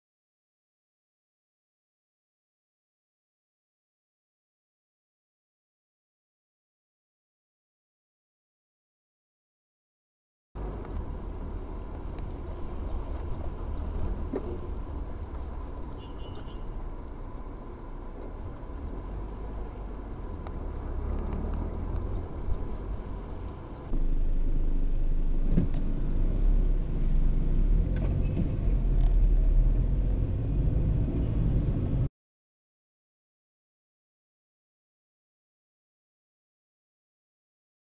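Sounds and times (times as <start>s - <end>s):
engine and traffic rumble: 10.6s - 32.1s
muffled rumble: 10.6s - 32.1s.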